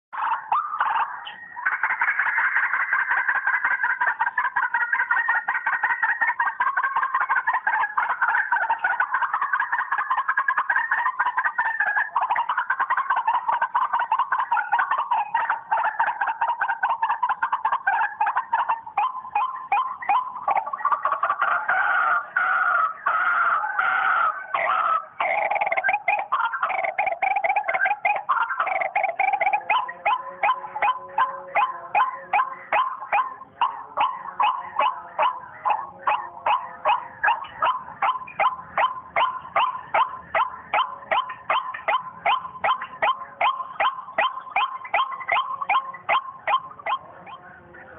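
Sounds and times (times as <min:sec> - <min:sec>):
waterhen calling: 0:00.2 - 0:47.9.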